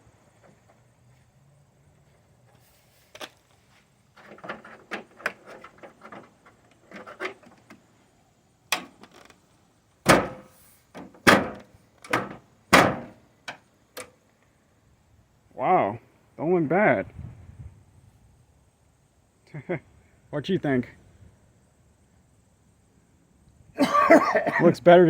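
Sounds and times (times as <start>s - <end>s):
metal hood rattling and clicking: 4.2s - 7.8s, 10.0s - 13.2s
hood slamming with metallic ring: 10.1s - 10.5s, 11.2s - 13.2s.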